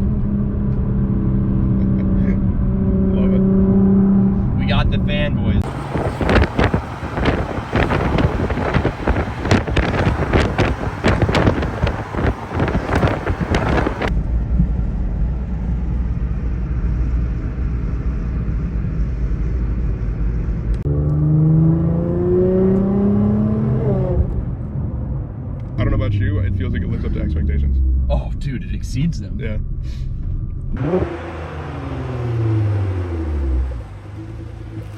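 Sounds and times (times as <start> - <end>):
car engine and road noise: 0.0 - 34.9
car engine accelerating: 5.5 - 14.2, 18.2 - 28.3, 30.0 - 34.9
wind buffeting microphone: 5.6 - 15.0.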